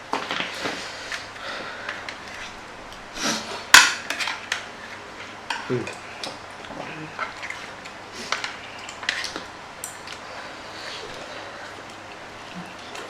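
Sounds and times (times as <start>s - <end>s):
cutlery clicking and scraping: 3.7s - 6.4s, 7.2s - 10.2s.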